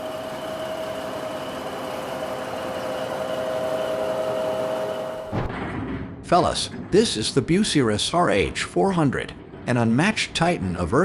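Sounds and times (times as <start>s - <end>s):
heavy diesel engine running: 0.0s - 5.3s
constant whine: 0.0s - 5.4s.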